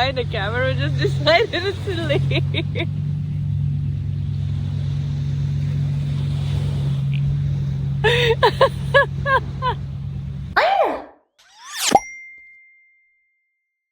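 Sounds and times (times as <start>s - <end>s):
low motor hum: 0.0s - 10.6s.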